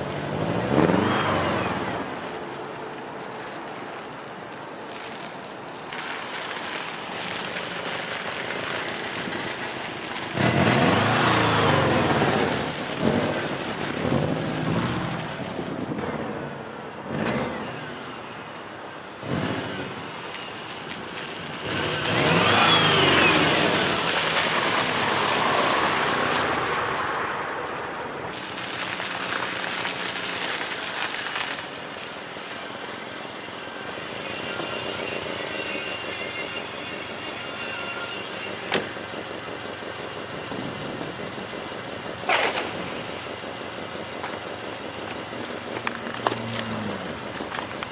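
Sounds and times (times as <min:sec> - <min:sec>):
car engine revving: 0:00.0 - 0:02.3, 0:07.9 - 0:18.4, 0:19.1 - 0:20.6, 0:21.4 - 0:27.0, 0:38.4 - 0:47.9.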